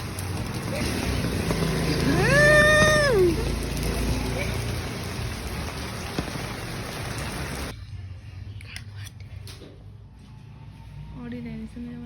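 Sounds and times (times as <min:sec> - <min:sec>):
rain hissing: 0:00.0 - 0:07.7.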